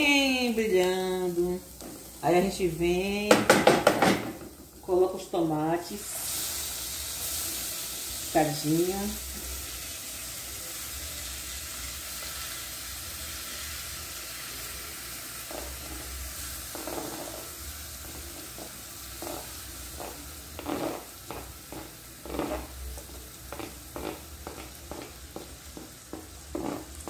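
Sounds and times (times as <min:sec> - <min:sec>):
onions sizzling in a pot: 0:00.0 - 0:27.0
spoon scraping a cutting board: 0:19.2 - 0:25.1.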